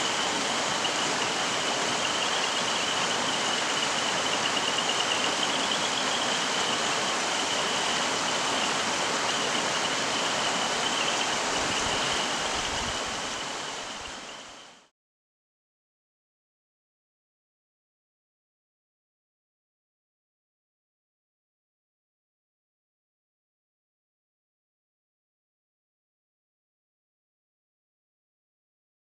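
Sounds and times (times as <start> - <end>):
stream flowing over rocks: 0.0 - 14.9.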